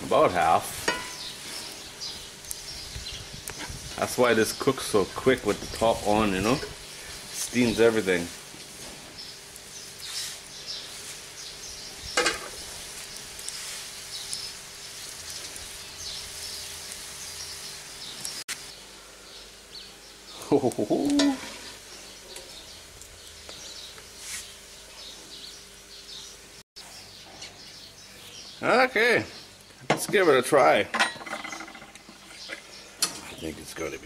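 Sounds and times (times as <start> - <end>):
food sizzling in skillet: 0.0 - 19.7, 20.6 - 24.9.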